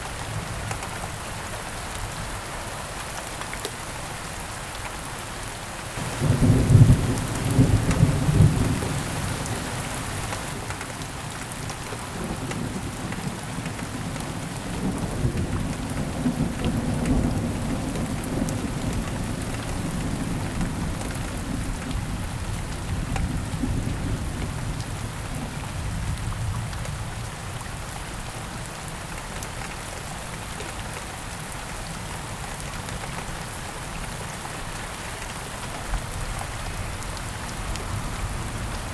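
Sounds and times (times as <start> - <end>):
heavy rain: 0.0 - 38.9
thunderclap: 6.0 - 9.2
rolling thunder rumbling: 6.0 - 10.5.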